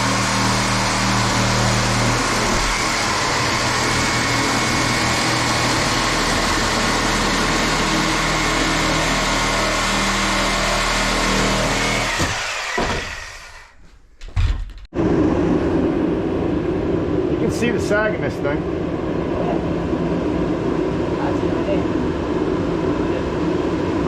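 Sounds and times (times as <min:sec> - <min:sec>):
electric power saw spinning down: 0:00.0 - 0:13.8.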